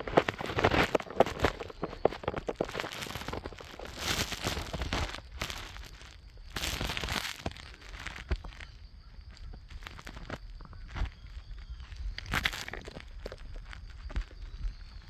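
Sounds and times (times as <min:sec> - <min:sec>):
footsteps crunching on trail: 0:00.0 - 0:15.0.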